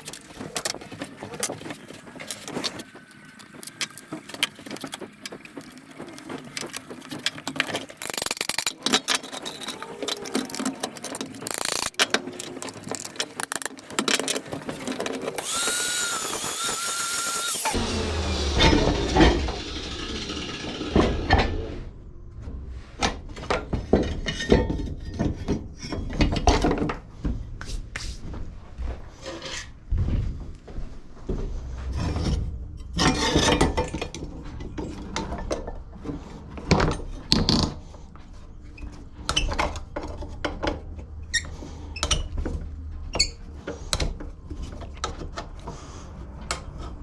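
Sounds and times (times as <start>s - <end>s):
metal clicks and rattles: 0.0s - 17.7s
power tool whining: 8.0s - 21.8s.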